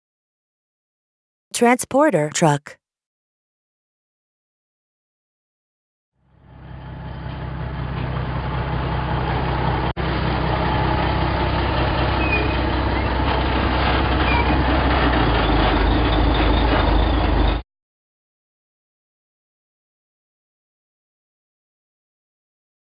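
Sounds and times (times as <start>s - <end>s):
truck engine rumbling: 6.4s - 17.6s.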